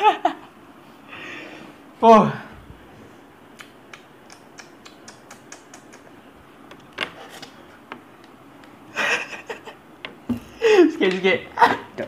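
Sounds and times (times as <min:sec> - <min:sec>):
wet chewing mouth clicks: 0:03.5 - 0:06.2.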